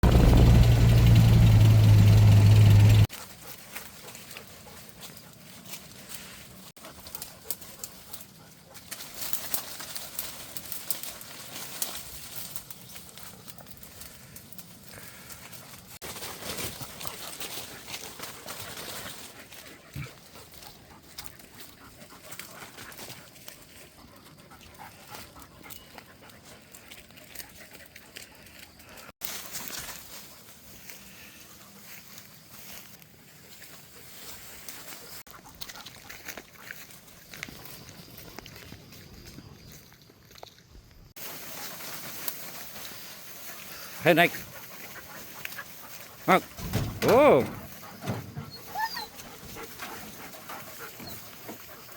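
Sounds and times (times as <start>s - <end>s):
dog: 3.1s - 9.5s, 16.6s - 29.1s, 34.0s - 36.9s, 43.5s - 51.9s.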